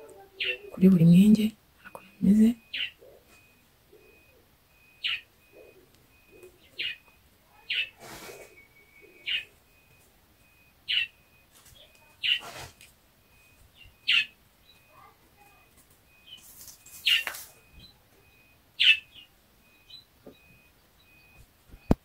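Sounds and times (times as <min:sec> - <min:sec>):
bird chirping sharply: 0:02.4 - 0:09.9, 0:10.5 - 0:12.7, 0:13.4 - 0:14.9, 0:16.1 - 0:21.3.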